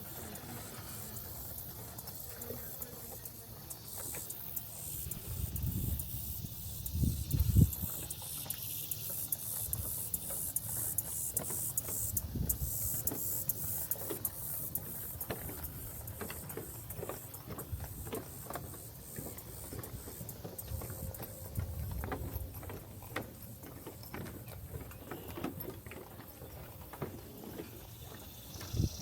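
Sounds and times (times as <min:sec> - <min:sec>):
steady high pulsing hiss: 0:00.0 - 0:24.5, 0:26.8 - 0:29.0
footsteps on walking trail: 0:00.0 - 0:29.0
wind rumbling on microphone: 0:05.0 - 0:08.2, 0:12.1 - 0:13.1, 0:20.6 - 0:22.7, 0:28.4 - 0:29.0.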